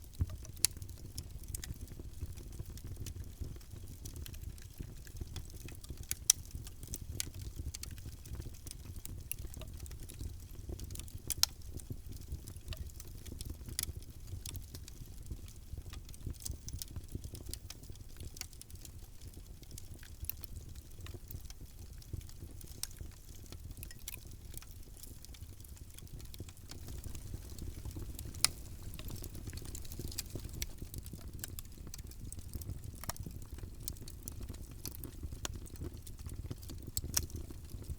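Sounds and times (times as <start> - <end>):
wood fire crackling: 0.0 - 37.9
fire pops: 22.6 - 37.8.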